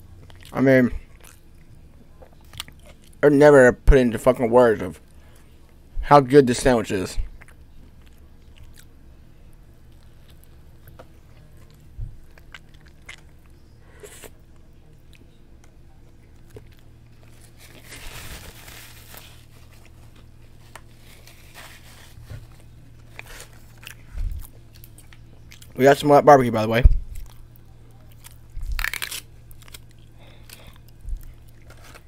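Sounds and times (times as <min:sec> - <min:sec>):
person chewing food: 0:00.0 - 0:03.2, 0:07.3 - 0:09.0, 0:09.8 - 0:25.8, 0:27.1 - 0:32.0.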